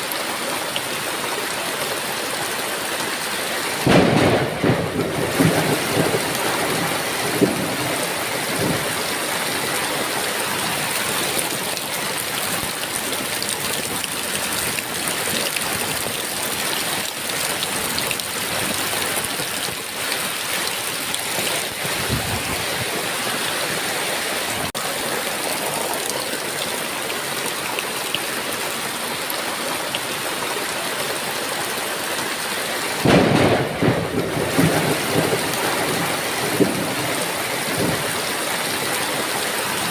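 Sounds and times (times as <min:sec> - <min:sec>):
heavy rain falling: 0:00.0 - 0:39.9
thunder rumbling: 0:03.8 - 0:10.2, 0:21.2 - 0:23.2, 0:33.0 - 0:38.3.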